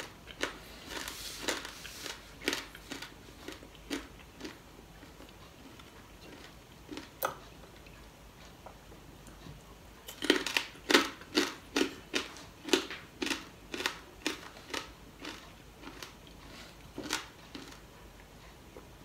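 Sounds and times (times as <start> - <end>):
person crunching crispy food: 10.1 - 17.8.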